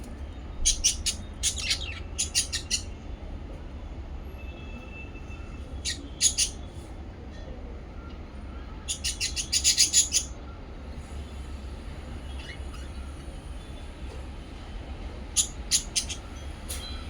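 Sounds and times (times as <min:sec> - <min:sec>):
parrots chirping: 0:00.6 - 0:02.9, 0:05.8 - 0:06.7, 0:08.8 - 0:10.4, 0:12.2 - 0:13.2, 0:15.3 - 0:16.5.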